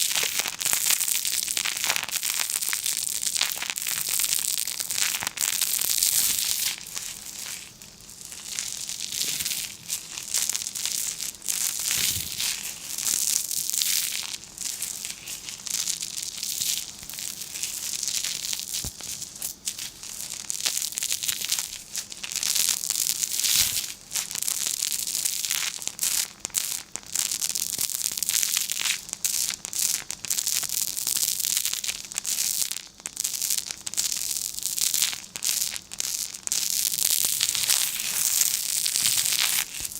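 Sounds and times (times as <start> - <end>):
paper crinkling: 6.0 - 13.2.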